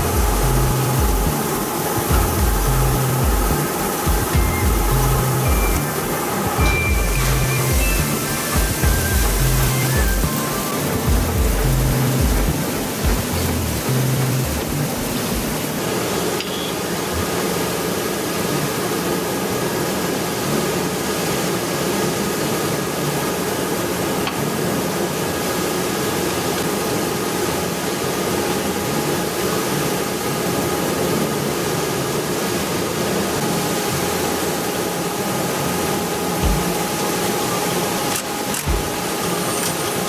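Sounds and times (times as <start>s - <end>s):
steady machine drone: 0.0s - 40.0s.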